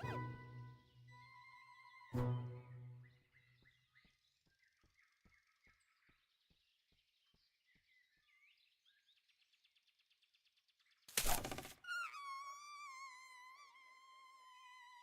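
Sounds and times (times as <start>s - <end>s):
faint bird-like chirps: 7.2s - 15.0s.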